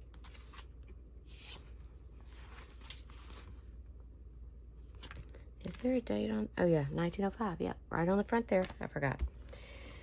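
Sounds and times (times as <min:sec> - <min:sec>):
paper cards rustling: 0:00.0 - 0:03.8, 0:08.2 - 0:09.3.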